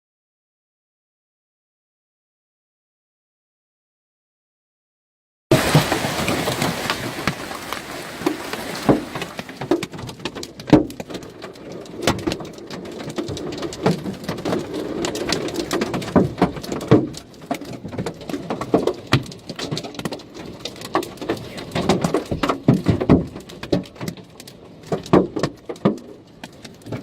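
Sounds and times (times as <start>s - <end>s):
hailstones striking hard surfaces: 5.5s - 27.0s.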